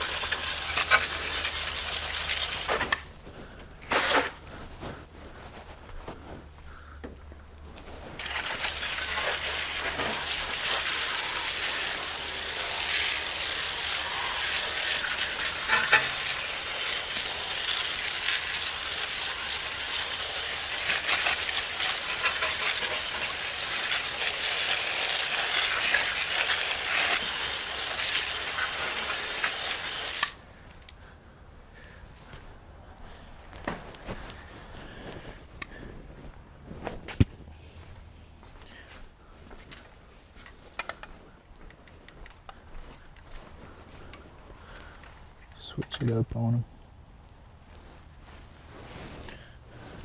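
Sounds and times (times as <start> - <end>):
water spraying from nozzle: 0.0 - 3.1, 3.8 - 4.4, 8.2 - 30.4.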